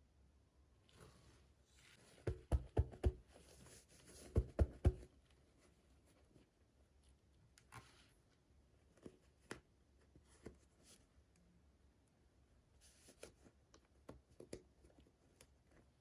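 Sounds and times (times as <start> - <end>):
soft rustling: 0.8 - 2.5.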